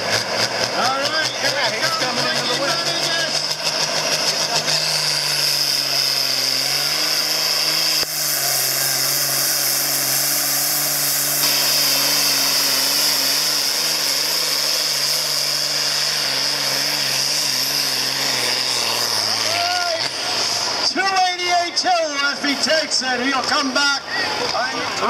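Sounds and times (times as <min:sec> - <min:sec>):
tractor diesel engine under load: 0:00.0 - 0:25.0
high whine: 0:05.7 - 0:16.9.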